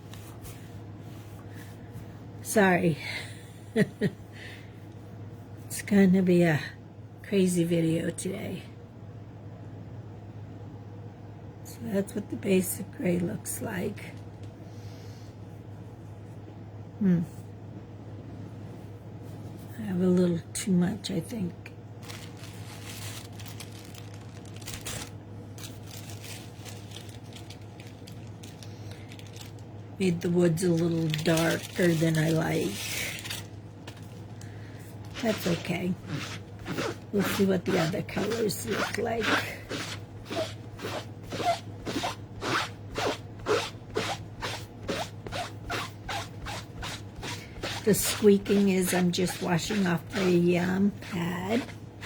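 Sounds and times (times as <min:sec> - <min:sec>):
steady low hum: 0:00.0 - 0:52.0
paper rustling: 0:22.0 - 0:29.6, 0:30.6 - 0:34.3
squeaky scrubbing: 0:35.1 - 0:51.8.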